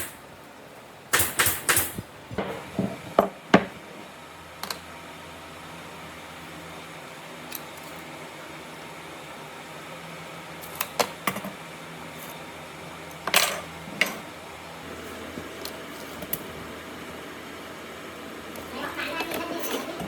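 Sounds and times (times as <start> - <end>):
steady low hum: 0.0 - 20.0
sharp knocks and clicks: 1.1 - 3.0.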